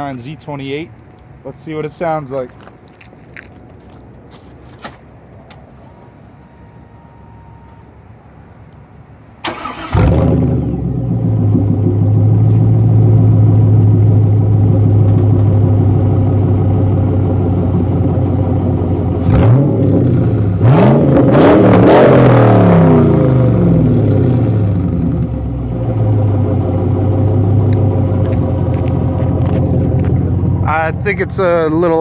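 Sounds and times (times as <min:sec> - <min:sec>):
car engine starting and idling: 0:09.4 - 0:32.0
engine revving: 0:09.5 - 0:14.0, 0:19.0 - 0:31.6.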